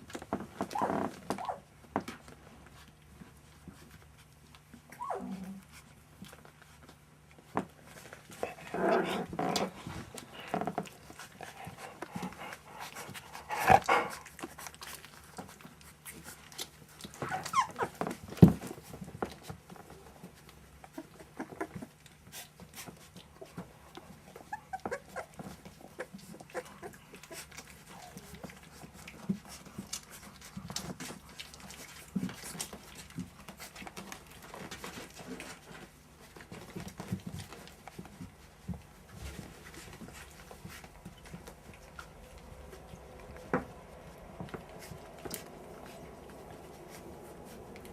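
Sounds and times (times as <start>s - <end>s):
puppies vocalising: 8.5s - 18.3s, 20.6s - 35.7s.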